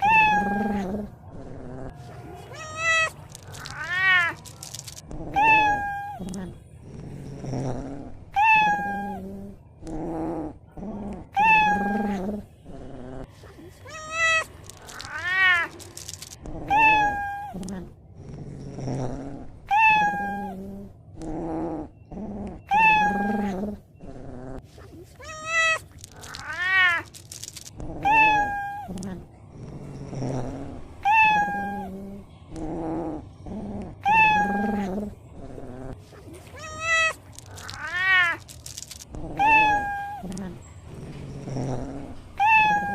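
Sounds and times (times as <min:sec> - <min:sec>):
cat meowing: 0:00.0 - 0:01.1, 0:02.4 - 0:06.4, 0:08.3 - 0:09.3, 0:11.3 - 0:12.4, 0:13.7 - 0:17.9, 0:19.7 - 0:20.7, 0:22.7 - 0:23.8, 0:25.0 - 0:29.2, 0:31.0 - 0:32.0, 0:34.0 - 0:35.1, 0:36.4 - 0:40.6, 0:42.4 - 0:42.9.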